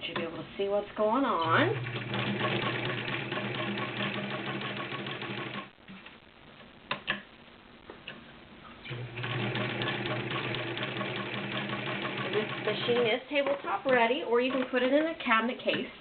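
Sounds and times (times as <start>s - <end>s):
sewing machine motor hum: 1.4s - 5.7s, 8.9s - 13.1s.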